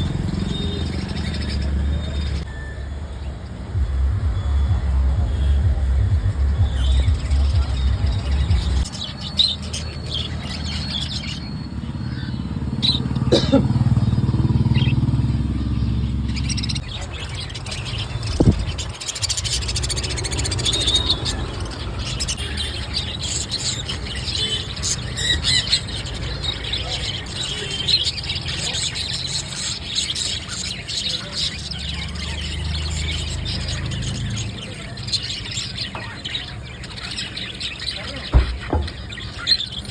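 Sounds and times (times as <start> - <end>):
steady low rumble: 3.6 - 8.9
parrots chirping high calls: 6.4 - 39.9.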